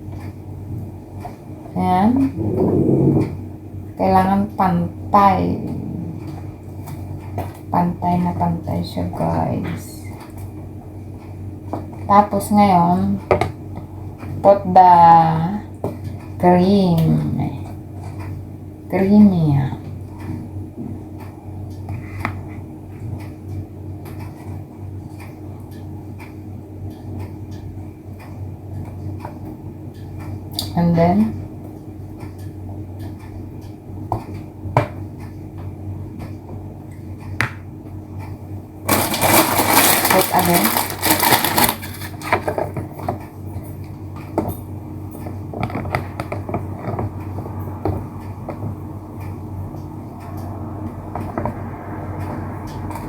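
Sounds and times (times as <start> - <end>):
steady low hum: 0.0 - 53.0
utensil clicking and scraping in dish: 38.9 - 43.3, 45.2 - 48.7.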